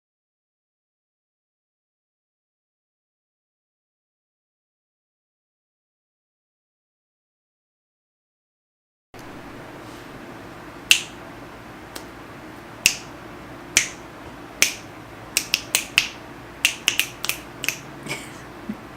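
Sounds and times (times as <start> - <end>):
steady low hum: 9.2 - 18.9
sharp snapping clicks: 10.9 - 11.2, 11.9 - 12.1, 12.8 - 13.1, 13.8 - 14.0, 14.6 - 17.8.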